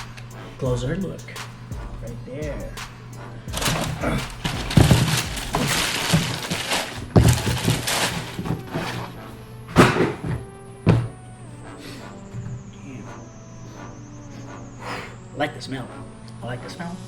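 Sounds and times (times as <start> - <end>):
background music: 0.0 - 17.0
packaging rustling: 3.5 - 10.5.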